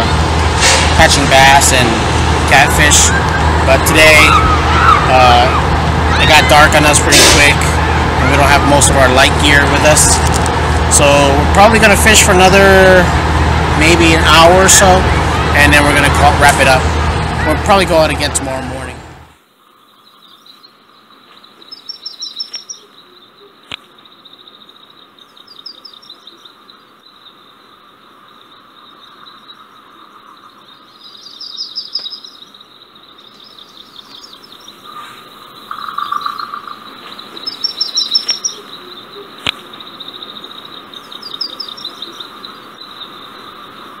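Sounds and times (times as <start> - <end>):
steady high trill: 0.0 - 19.3
birds chirping: 0.0 - 44.0.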